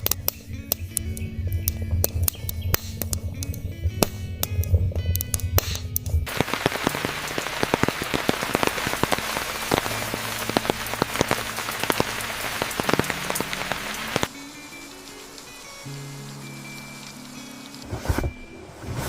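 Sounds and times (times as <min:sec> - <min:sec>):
music: 0:00.0 - 0:19.0
rain on a hard surface: 0:06.3 - 0:17.9.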